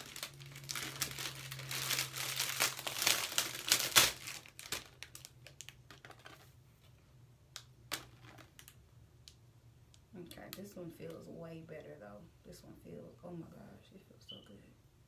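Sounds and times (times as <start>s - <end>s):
plastic packaging crinkling: 0.0s - 6.6s, 7.6s - 8.8s.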